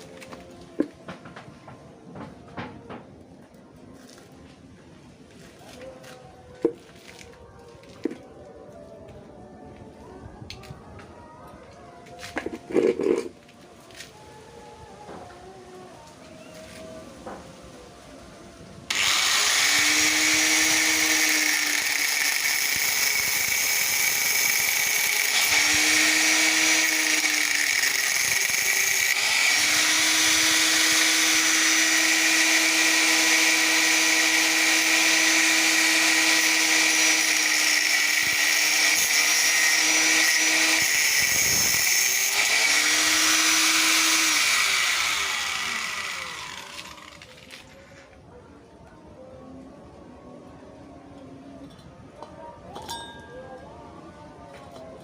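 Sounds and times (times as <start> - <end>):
power tool cutting metal: 18.9 - 47.7.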